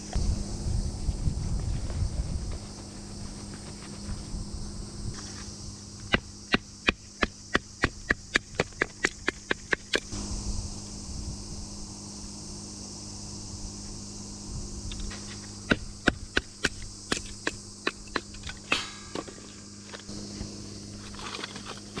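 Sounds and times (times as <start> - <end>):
sharp knocks splitting firewood: 15.1 - 20.1.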